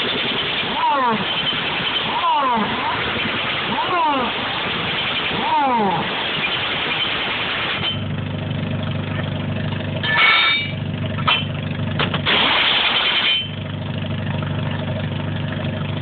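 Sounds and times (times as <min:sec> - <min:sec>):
engine idling: 0:00.0 - 0:16.0
short ringing tone: 0:10.0 - 0:10.8.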